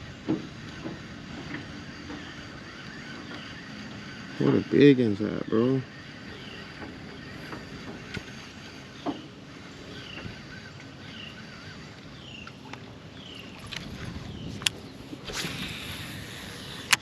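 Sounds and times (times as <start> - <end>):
bird chirping: 2.0 - 13.6.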